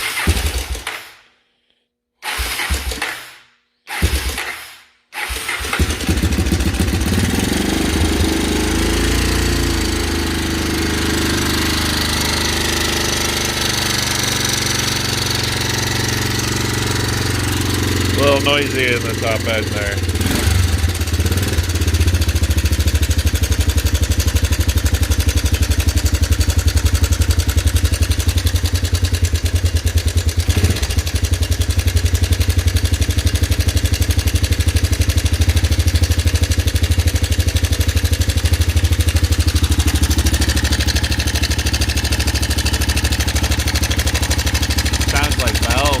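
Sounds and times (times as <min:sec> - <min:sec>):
engine idling with hammering: 0:30.4 - 0:46.0.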